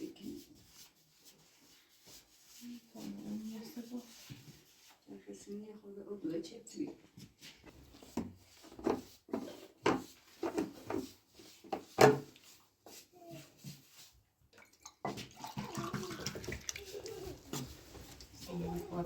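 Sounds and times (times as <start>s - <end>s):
water running: 14.5s - 19.0s
water splashing: 14.6s - 18.5s.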